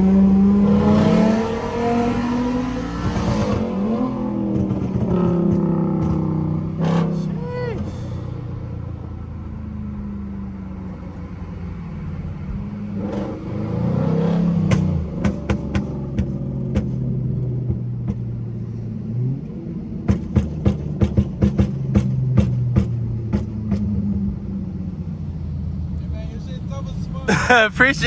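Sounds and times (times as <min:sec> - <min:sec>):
exhaust popping: 0:00.0 - 0:10.2, 0:14.4 - 0:25.0
car engine revving: 0:00.0 - 0:28.0.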